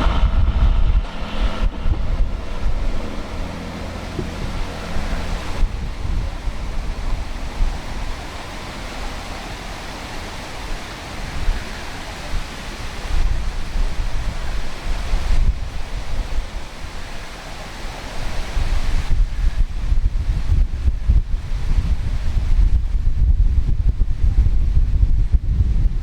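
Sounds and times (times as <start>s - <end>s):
waterfall rushing: 0.0s - 19.2s
wind gusting on microphone: 0.0s - 26.0s.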